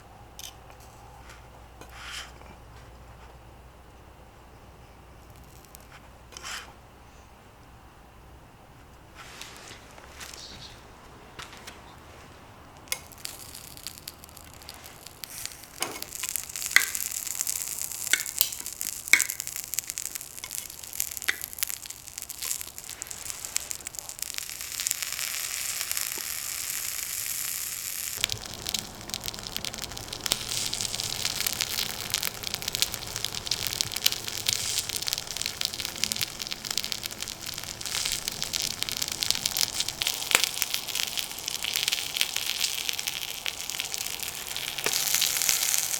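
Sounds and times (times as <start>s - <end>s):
sharp pops: 12.8s - 45.9s
food sizzling in a pan: 12.9s - 45.9s.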